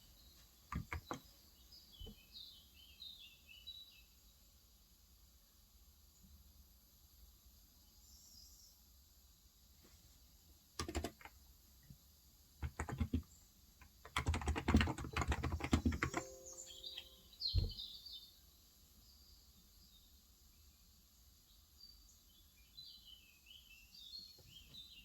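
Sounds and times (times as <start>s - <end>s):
birds chirping faintly: 0.0s - 4.6s, 10.6s - 25.0s
keyboard typing: 0.7s - 1.2s, 10.8s - 11.3s, 12.6s - 17.1s.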